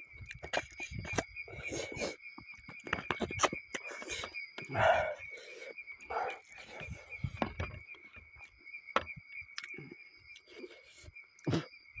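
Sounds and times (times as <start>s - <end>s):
man chewing and lip-smacking: 0.1s - 2.2s, 3.1s - 7.3s, 9.5s - 11.7s.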